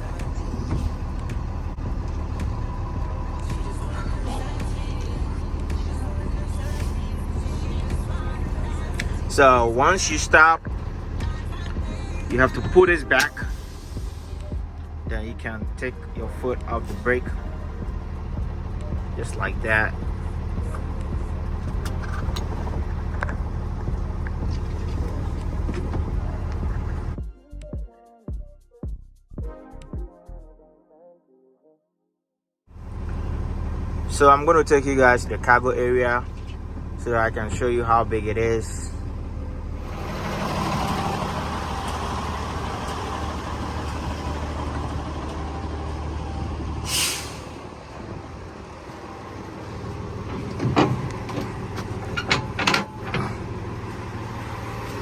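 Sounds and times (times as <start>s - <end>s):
outdoor rushing noise: 0.0s - 27.2s
truck engine idling: 0.0s - 27.2s, 32.7s - 55.0s
short sharp hiss: 46.9s - 47.6s.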